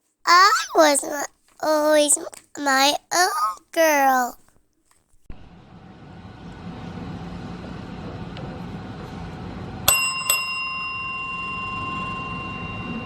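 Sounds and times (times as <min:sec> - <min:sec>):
small bell ringing: 0:09.9 - 0:13.0.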